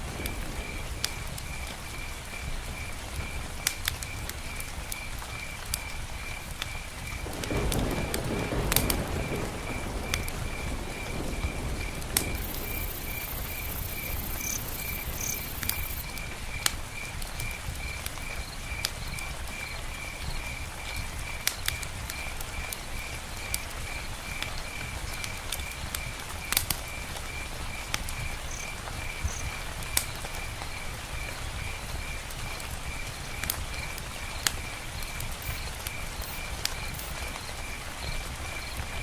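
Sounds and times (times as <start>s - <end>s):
campfire crackling and popping: 0.0s - 39.0s
light rain: 0.0s - 39.0s.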